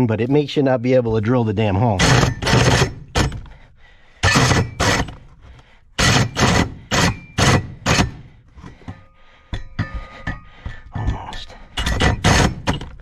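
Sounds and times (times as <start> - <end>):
electric drill bursts: 6.0 - 8.2.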